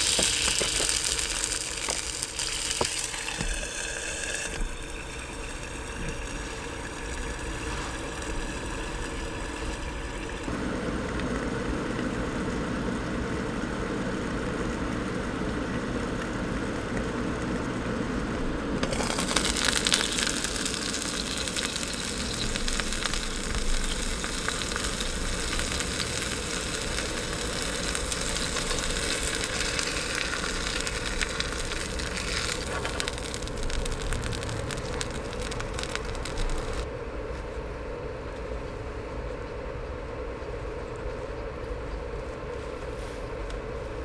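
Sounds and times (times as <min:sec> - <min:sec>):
steady rain patter: 0:00.0 - 0:03.4, 0:10.4 - 0:36.9
dull rain hiss: 0:00.0 - 0:36.9.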